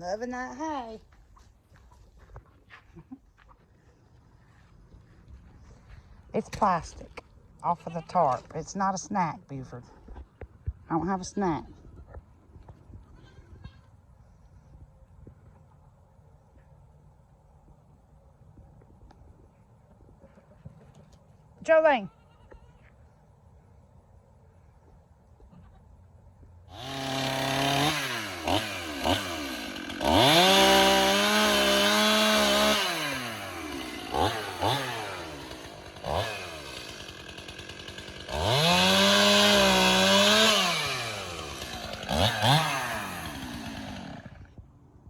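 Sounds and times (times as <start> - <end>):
small gasoline engine revving: 26.7 - 44.5.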